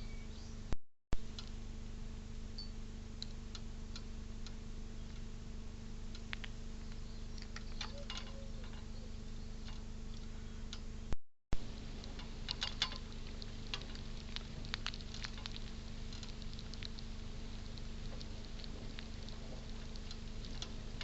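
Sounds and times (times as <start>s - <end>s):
steady electrical hum: 0.0s - 21.0s.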